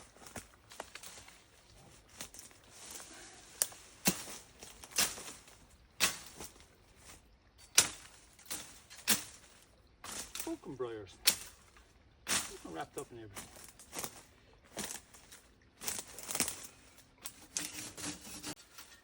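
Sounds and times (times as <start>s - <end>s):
vegetation rustling: 0.0s - 19.0s
brambles snapping: 3.6s - 6.6s, 7.6s - 10.6s, 11.2s - 12.8s, 14.8s - 18.1s.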